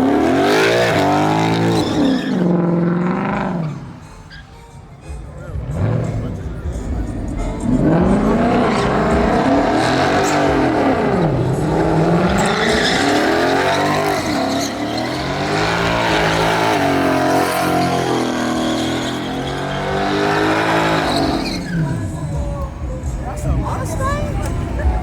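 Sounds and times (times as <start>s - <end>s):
spinning tires hissing: 0.0s - 25.0s
truck engine revving: 0.0s - 25.0s.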